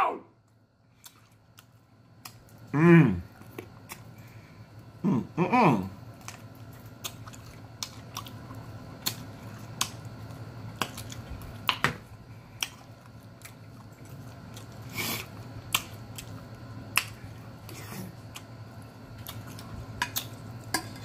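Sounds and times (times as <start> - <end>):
close-up chewing: 6.0 - 20.8.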